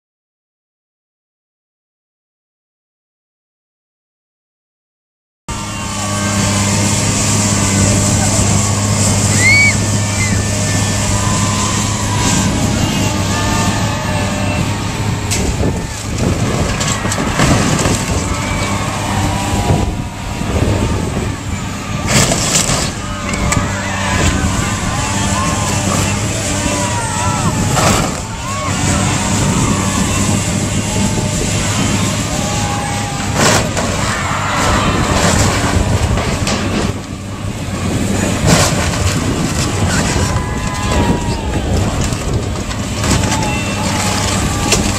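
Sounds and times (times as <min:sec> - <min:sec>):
demolition machinery running: 0:05.5 - 0:44.9
building crunching and cracking: 0:07.2 - 0:44.9
crashes of breaking material: 0:15.4 - 0:18.7, 0:22.0 - 0:23.0, 0:33.3 - 0:37.0, 0:38.4 - 0:40.4.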